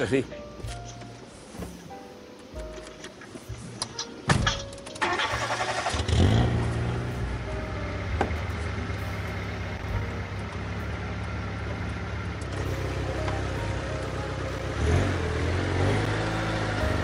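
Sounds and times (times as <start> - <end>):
car engine at low revs: 6.0 - 17.0.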